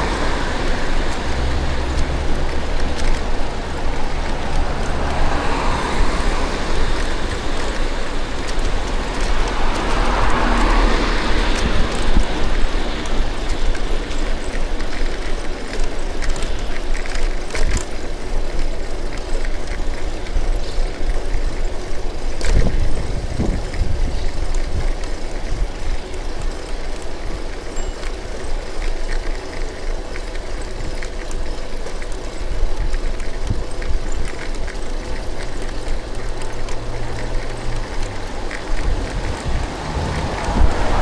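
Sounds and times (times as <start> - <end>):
motor vehicle passing: 0.0 - 16.5, 34.0 - 41.0
road noise and rumble: 0.0 - 41.0.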